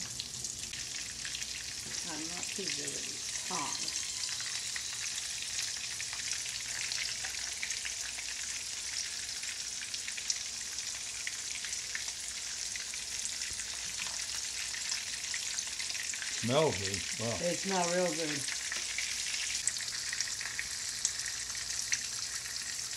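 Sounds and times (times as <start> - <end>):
shrimp sizzling in oil: 0.0 - 22.9.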